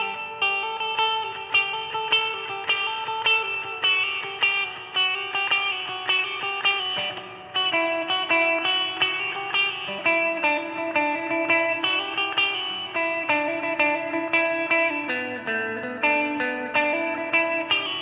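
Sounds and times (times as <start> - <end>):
electric guitar picking single notes: 0.0 - 18.0.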